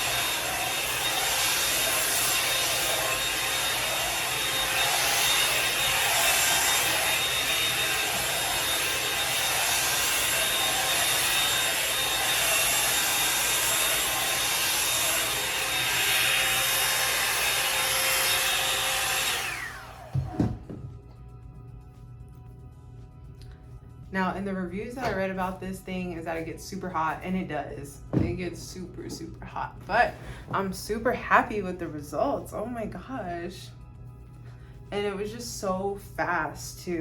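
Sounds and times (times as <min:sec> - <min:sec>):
hot-air brush motor whine: 0:00.0 - 0:21.0.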